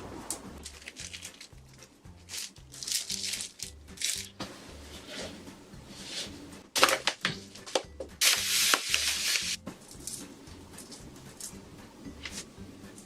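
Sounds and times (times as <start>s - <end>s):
rasping rubbing noise: 0.0s - 6.7s, 8.2s - 9.8s
shrimp shell crackling: 0.6s - 4.4s.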